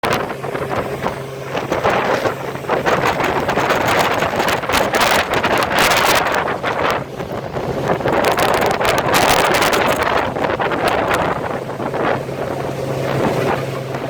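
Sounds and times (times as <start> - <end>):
personal watercraft running: 0.0 - 14.0
water splashing: 0.0 - 14.0
wind buffeting microphone: 0.0 - 14.0.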